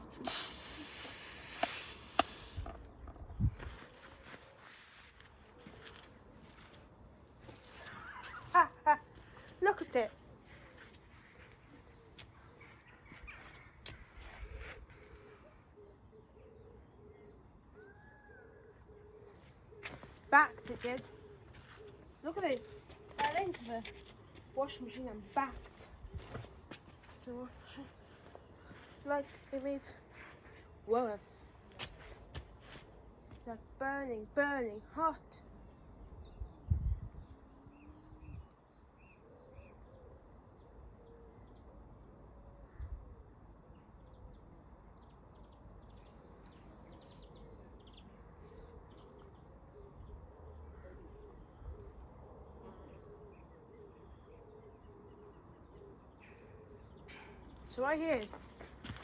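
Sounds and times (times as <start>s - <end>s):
faint low bird calls: 10.2s - 33.5s, 35.4s - 59.0s.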